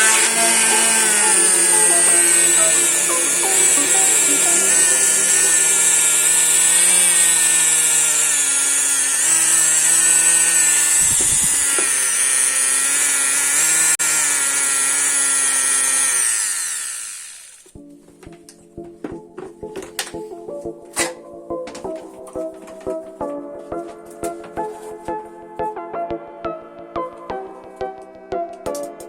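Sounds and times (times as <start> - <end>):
power tool motor running: 0.0 - 17.8.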